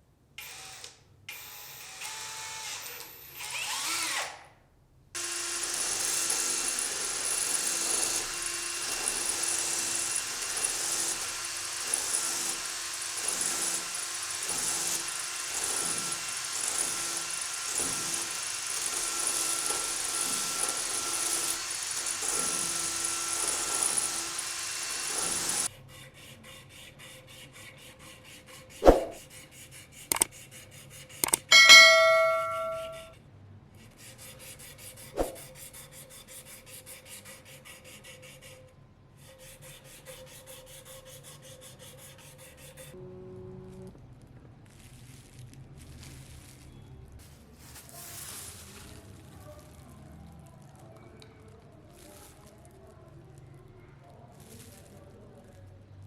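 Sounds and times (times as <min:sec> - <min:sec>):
power tool on metal: 0:05.2 - 0:25.7, 0:31.2 - 0:33.0
metallic ring: 0:31.4 - 0:33.1.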